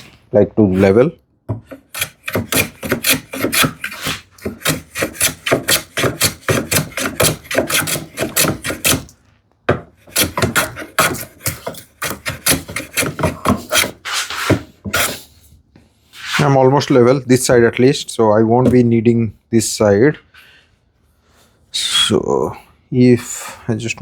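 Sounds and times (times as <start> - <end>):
hand plane strokes on wood: 1.6 - 9.1, 10.0 - 15.2.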